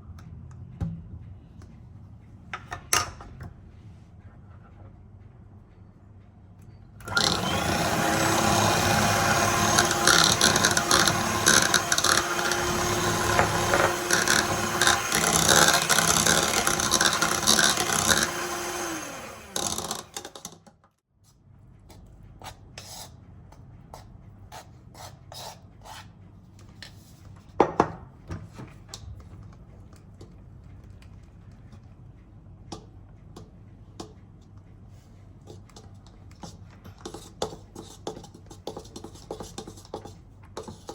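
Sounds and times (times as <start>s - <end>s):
kitchen appliance motor running: 7.0s - 20.6s.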